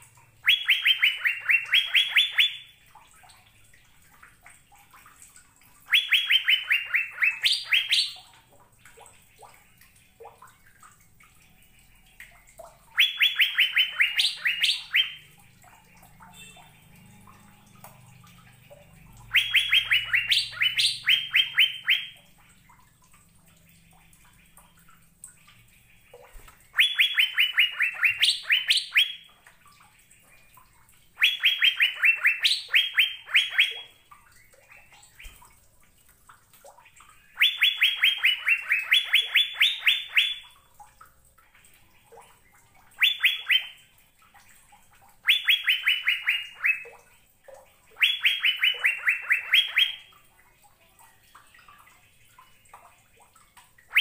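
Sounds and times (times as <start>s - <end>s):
bird whistling song: 0.4s - 2.8s, 5.9s - 8.3s, 12.9s - 15.3s, 19.2s - 22.2s, 26.7s - 29.3s, 31.2s - 34.0s, 37.3s - 40.6s, 43.0s - 43.8s, 45.2s - 46.9s, 48.0s - 50.1s.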